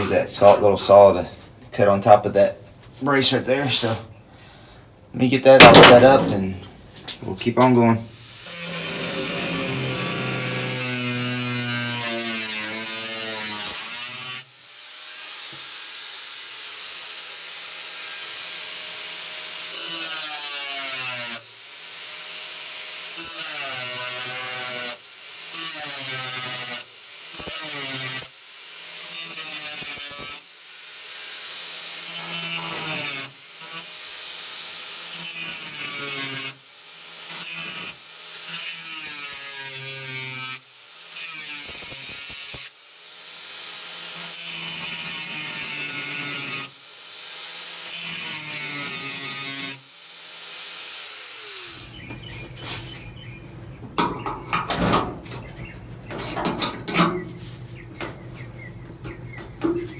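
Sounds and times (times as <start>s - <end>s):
metal clanks and knocks: 5.6s - 6.5s, 53.8s - 57.4s, 59.0s - 59.9s
cut-off wheel cutting steel: 8.2s - 15.5s, 37.2s - 52.0s.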